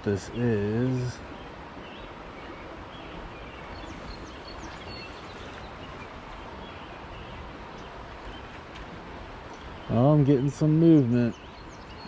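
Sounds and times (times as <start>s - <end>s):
fast-running stream: 0.0s - 12.0s
bird chirps: 1.4s - 8.5s.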